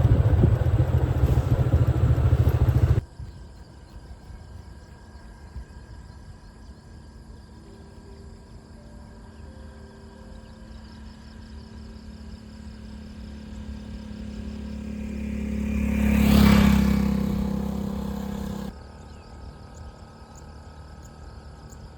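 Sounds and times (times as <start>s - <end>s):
motor vehicle passing: 0.0s - 3.0s, 11.6s - 18.7s
low hum: 0.0s - 6.4s, 7.5s - 18.7s
crickets chirping: 0.0s - 21.9s.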